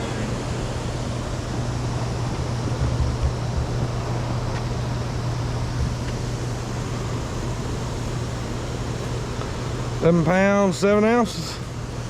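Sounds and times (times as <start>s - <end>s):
constant rushing noise: 0.0s - 12.0s
low mechanical hum: 0.0s - 12.0s.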